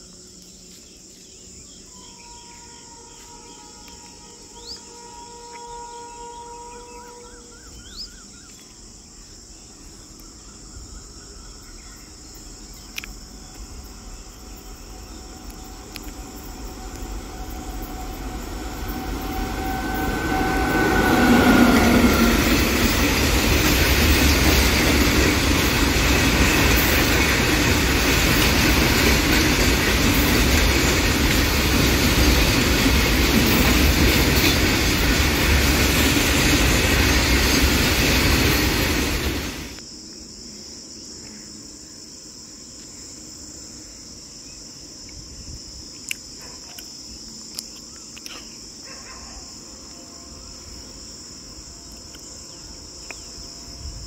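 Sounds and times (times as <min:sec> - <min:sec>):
electric locomotive passing: 0:01.6 - 0:08.0, 0:11.3 - 0:39.8, 0:49.7 - 0:54.0
freight wagons rolling past: 0:14.4 - 0:39.8.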